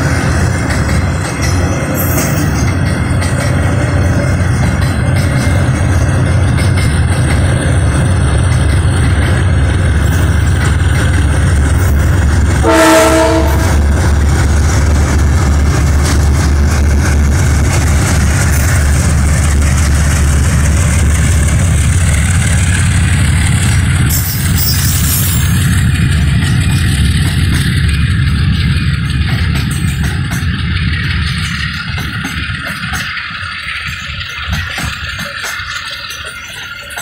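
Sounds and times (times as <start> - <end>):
freight train wheels rumbling: 0.0 - 37.0
train horn blast: 12.6 - 13.9.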